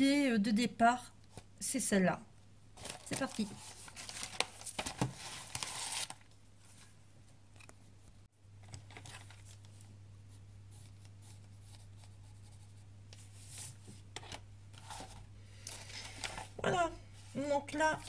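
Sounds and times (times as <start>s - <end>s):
paper rustling: 2.8s - 6.9s, 8.6s - 9.9s.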